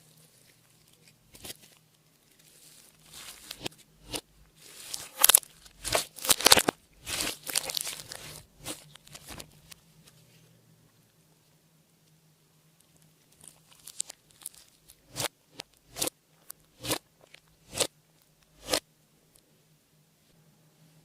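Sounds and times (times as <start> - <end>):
slime squished and stretched: 0.3 - 9.6.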